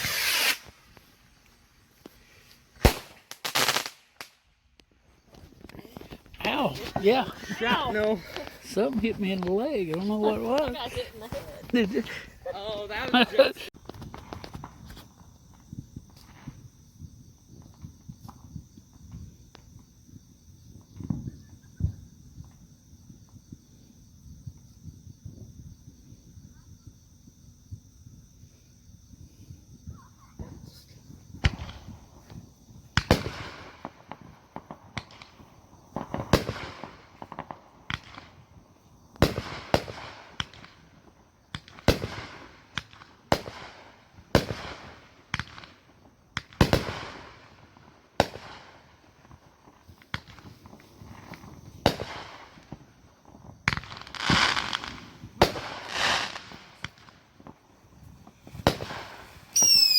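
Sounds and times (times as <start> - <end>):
fireworks bangs: 0.0 - 1.3, 1.9 - 4.5, 5.3 - 16.7, 29.9 - 59.9
fireworks crackling: 0.0 - 26.9, 28.4 - 59.9.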